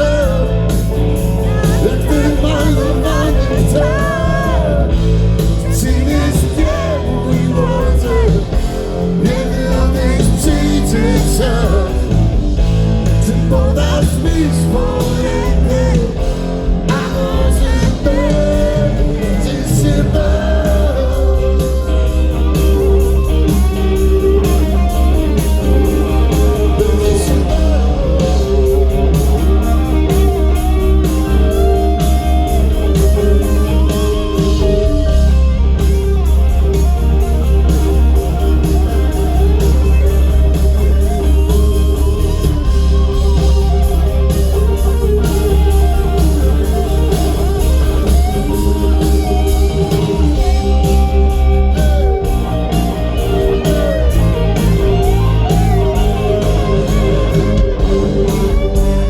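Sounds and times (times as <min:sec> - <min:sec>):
person singing: 0:00.0 - 0:23.3, 0:24.2 - 0:35.4
blues-rock band playing live: 0:00.0 - 0:59.0
electric guitar bending notes: 0:00.0 - 0:59.0.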